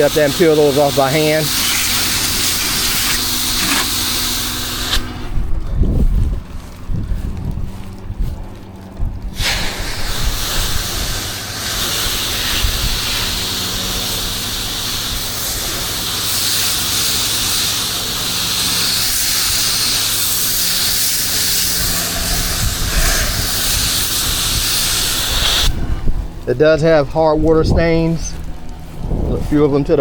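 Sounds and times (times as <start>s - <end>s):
pressure washer spraying water: 0.0s - 5.4s, 9.4s - 25.8s
engine humming: 0.0s - 30.0s.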